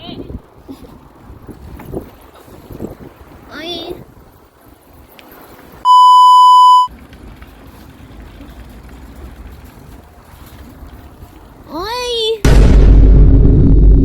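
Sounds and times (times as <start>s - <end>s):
faint outdoor background: 0.0s - 14.0s
censor bleep: 5.8s - 6.9s.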